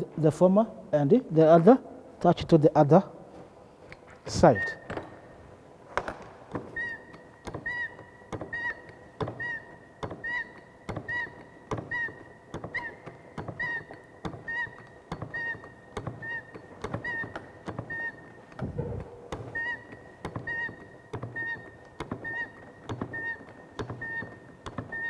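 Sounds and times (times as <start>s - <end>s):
pipe bender clicking and squeaking: 3.8s - 5.4s, 6.5s - 25.0s.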